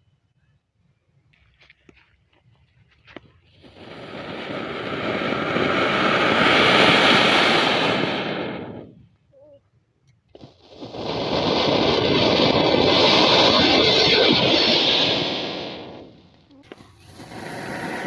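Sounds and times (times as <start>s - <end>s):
firework fountain hissing: 3.5s - 9.0s, 10.4s - 18.0s.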